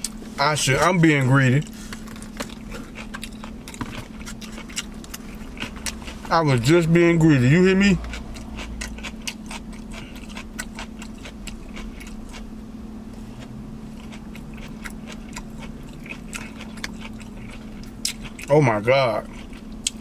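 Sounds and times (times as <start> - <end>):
steady low hum: 0.0 - 20.0
wet chewing mouth clicks: 13.4 - 18.5, 19.2 - 20.0.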